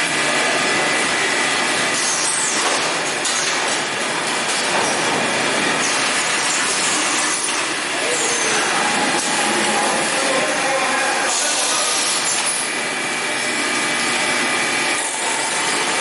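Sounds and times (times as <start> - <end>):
bagging machine running: 0.0 - 16.0
high machine squeals: 5.8 - 10.2, 11.3 - 12.7.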